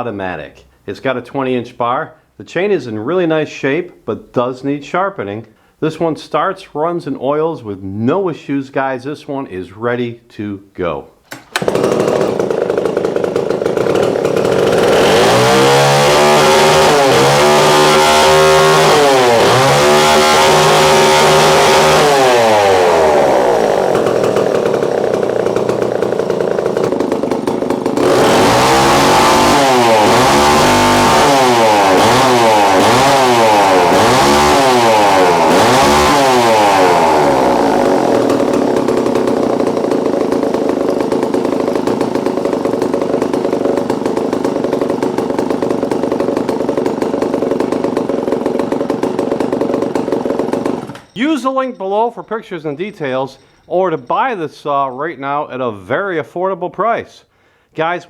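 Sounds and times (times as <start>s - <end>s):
chainsaw revving: 11.3s - 51.8s.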